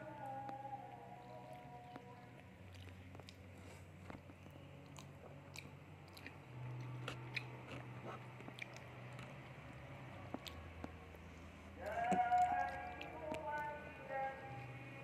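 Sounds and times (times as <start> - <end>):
child chewing soft food: 0.0 - 15.0
faint low hum: 0.0 - 15.0
mouth clicks and smacks: 1.3 - 9.5, 10.2 - 11.2.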